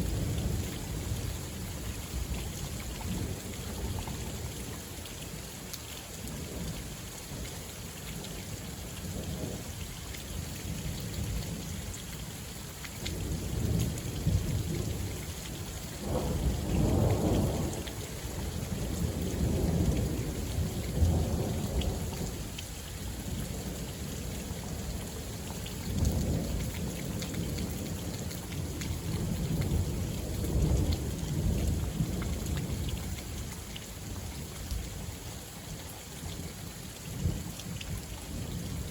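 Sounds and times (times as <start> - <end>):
steady rain: 0.0 - 38.9
raindrop ticks: 12.8 - 14.4, 15.4 - 22.7, 25.0 - 33.9.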